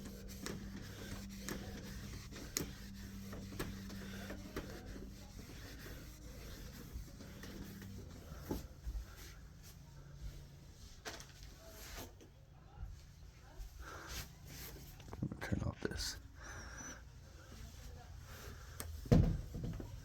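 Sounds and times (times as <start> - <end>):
cloth rubbing a screen: 0.0 - 9.8.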